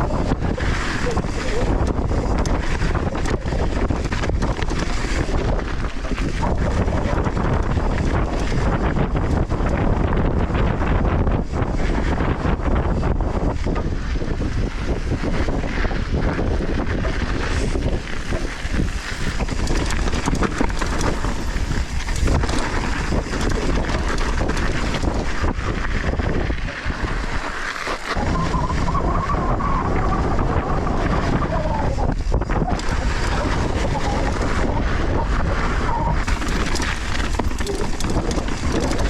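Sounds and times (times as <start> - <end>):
bike rattling and knocking: 0.0 - 39.0
wind rushing over microphone: 0.0 - 39.0
steady squeal: 17.0 - 25.5, 27.5 - 39.0.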